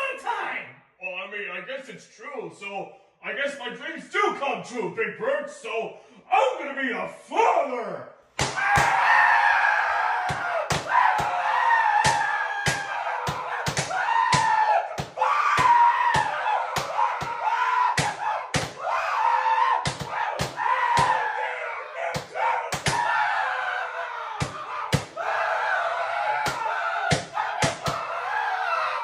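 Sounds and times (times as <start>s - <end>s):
sharp slaps: 8.4s - 9.0s, 10.2s - 11.4s, 12.0s - 18.9s, 19.7s - 21.2s, 22.1s - 23.1s, 24.4s - 25.2s, 26.4s - 28.1s.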